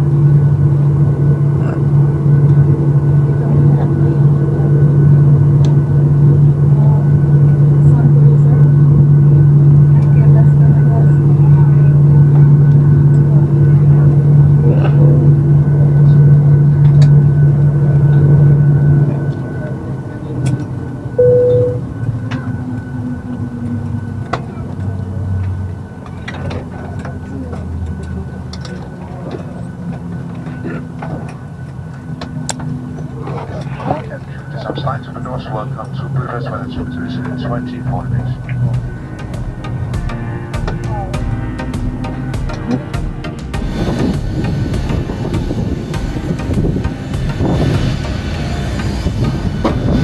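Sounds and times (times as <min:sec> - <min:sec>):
faint passenger voices: 0:00.0 - 0:41.7
aircraft ventilation hum: 0:00.0 - 0:43.0, 0:43.6 - 0:50.0
short beep: 0:21.2 - 0:21.9.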